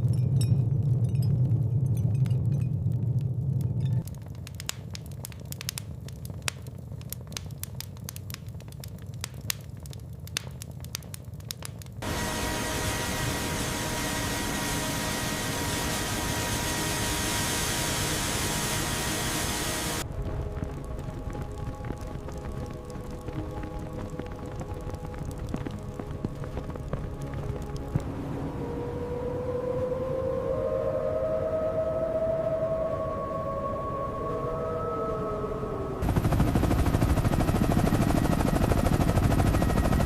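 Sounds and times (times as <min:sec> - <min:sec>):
low rumble: 0:00.0 - 0:04.6, 0:12.0 - 0:40.0
irregular crackling and clicking: 0:02.2 - 0:12.0, 0:20.0 - 0:28.1.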